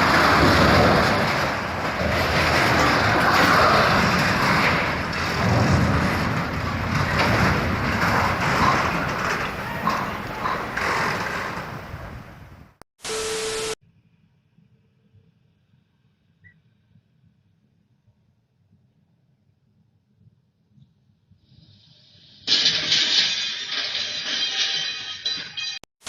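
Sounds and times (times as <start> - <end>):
vehicle engine and road rumble: 0.0 - 12.8.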